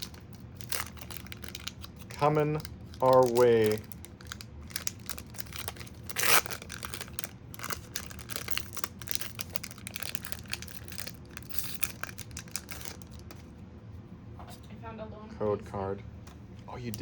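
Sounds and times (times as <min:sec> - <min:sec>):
foil wrapper crinkling: 0:00.0 - 0:13.5
foil wrapper ripping: 0:00.0 - 0:13.5.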